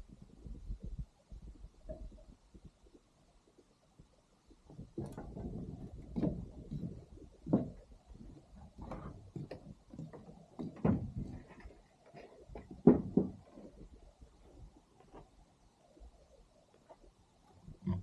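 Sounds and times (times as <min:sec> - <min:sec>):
soft thumps and knocks: 0:04.7 - 0:13.9.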